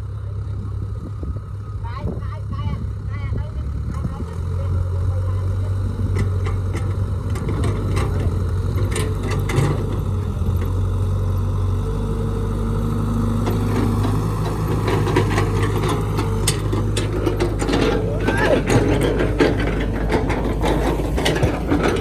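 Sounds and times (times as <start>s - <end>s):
excavator diesel engine: 0.0s - 22.0s
metallic clanks and knocks: 6.1s - 10.8s, 13.4s - 22.0s.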